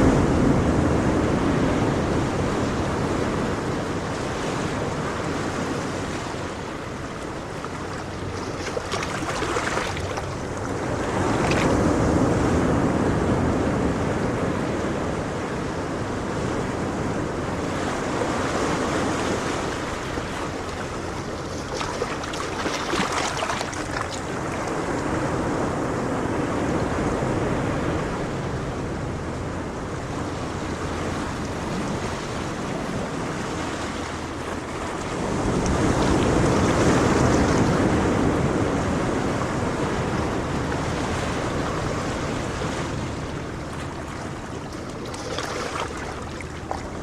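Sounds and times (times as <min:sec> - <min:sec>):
wind rushing over microphone: 0:00.0 - 0:47.0.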